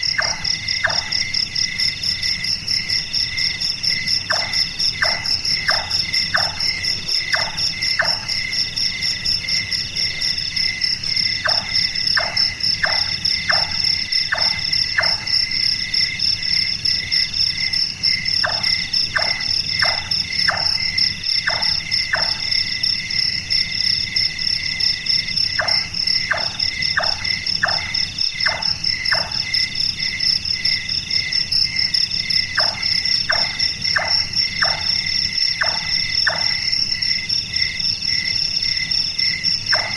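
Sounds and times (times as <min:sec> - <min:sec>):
crickets and night insects: 0:00.0 - 0:39.9
nightjar knocking calls: 0:00.1 - 0:01.3, 0:04.3 - 0:08.4, 0:11.4 - 0:15.3, 0:18.4 - 0:20.8, 0:25.6 - 0:29.5, 0:32.6 - 0:36.7.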